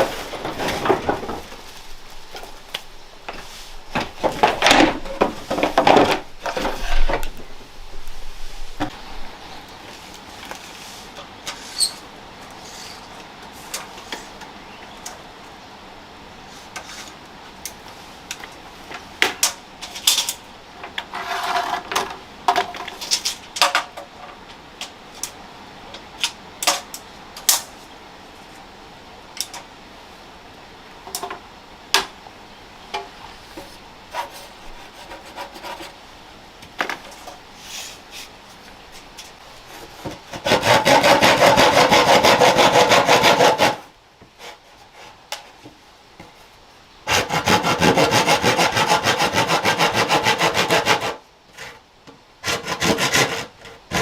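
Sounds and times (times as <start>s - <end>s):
fast rasping strokes on wood: 34.1s - 36.0s, 40.4s - 43.9s, 47.1s - 51.2s, 52.4s - 54.0s.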